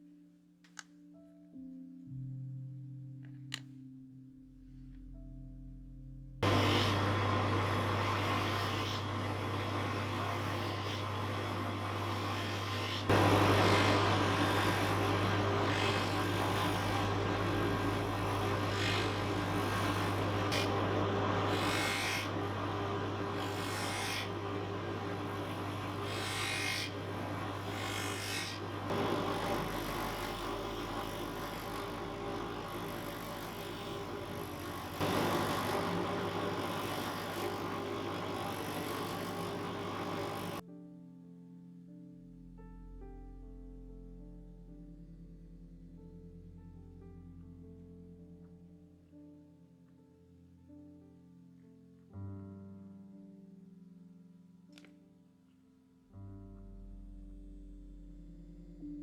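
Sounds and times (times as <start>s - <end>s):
electric bench tool running: 6.4s - 40.6s.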